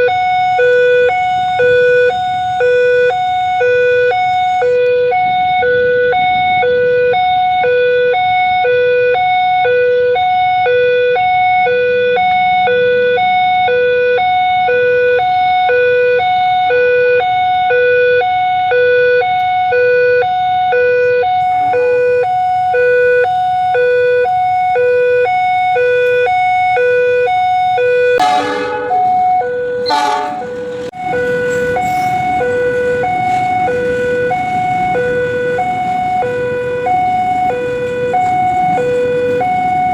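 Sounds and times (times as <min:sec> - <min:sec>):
level crossing two-tone alarm: 0:00.0 - 0:39.9
loud harsh sound: 0:28.2 - 0:30.9
approaching train rumble: 0:28.2 - 0:39.9.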